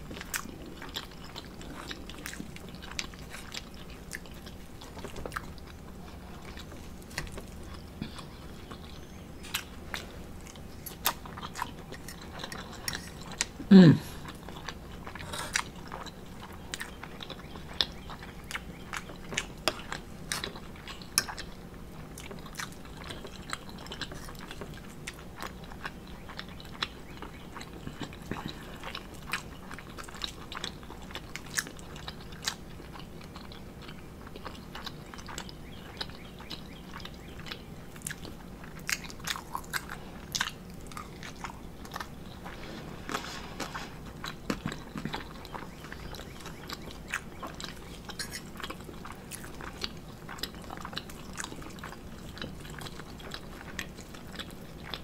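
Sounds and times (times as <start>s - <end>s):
person chewing: 0.0s - 55.0s.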